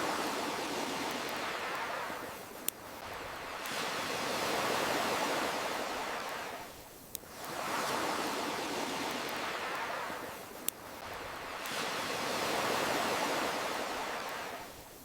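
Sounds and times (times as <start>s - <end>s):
ocean waves washing: 0.0s - 14.8s
campfire crackling pops: 0.9s - 4.0s, 6.3s - 7.6s, 8.9s - 12.9s.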